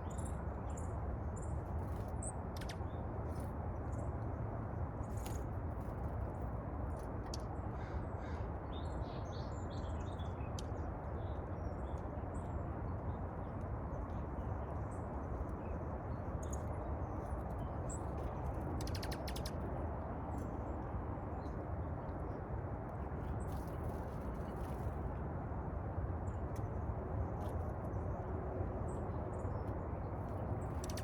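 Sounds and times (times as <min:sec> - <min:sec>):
small birds chirping: 0:16.4 - 0:19.7.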